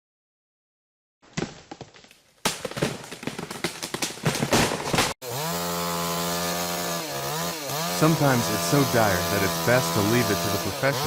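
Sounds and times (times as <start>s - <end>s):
rapid cracking and snapping: 1.3s - 5.2s
chainsaw engine revving: 4.9s - 11.0s.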